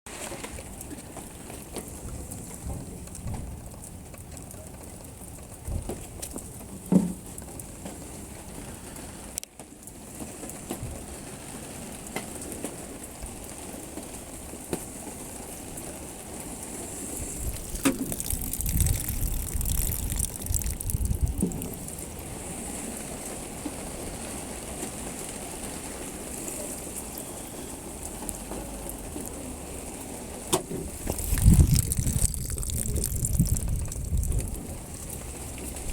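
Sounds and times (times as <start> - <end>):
water splashing over car hood: 17.2 - 22.5.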